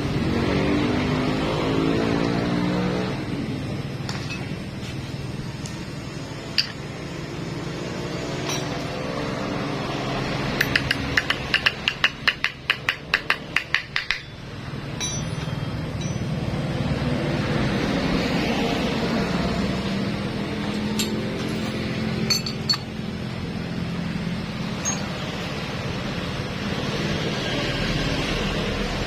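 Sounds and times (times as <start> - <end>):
hand tool metallic clicks: 10.6 - 14.4.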